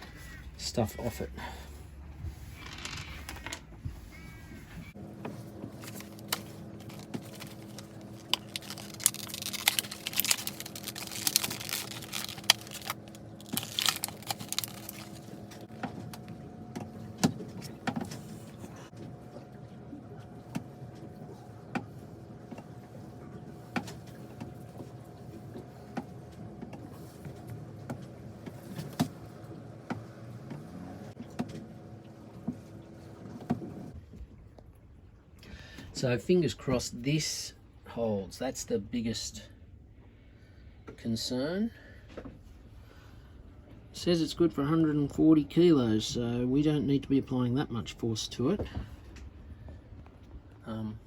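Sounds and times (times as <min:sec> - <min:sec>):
steady hum: 0:00.0 - 0:34.0.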